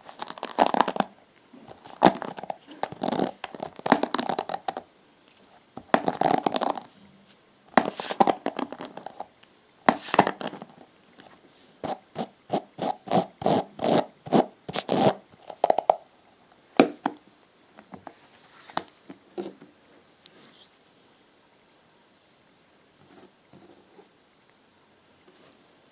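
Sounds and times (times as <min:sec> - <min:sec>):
hairbrush bristles scratching: 0:01.7 - 0:04.8, 0:07.8 - 0:09.2, 0:11.9 - 0:15.2.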